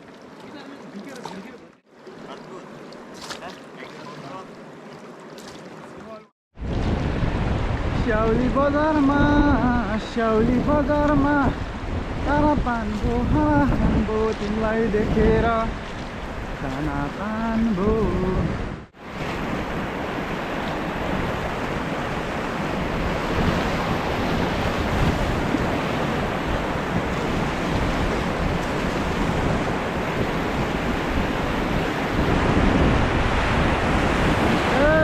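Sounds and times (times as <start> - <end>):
river water rushing: 0.0 - 6.2
wind buffeting the microphone: 6.6 - 35.0.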